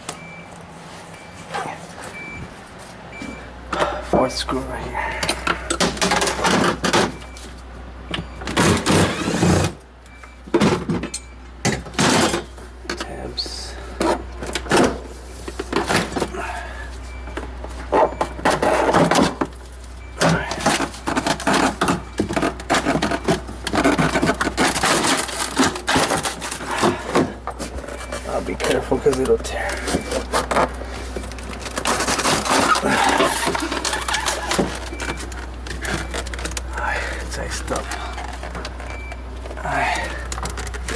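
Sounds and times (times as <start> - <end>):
plastic cover crackling and scraping: 20.5 - 40.9.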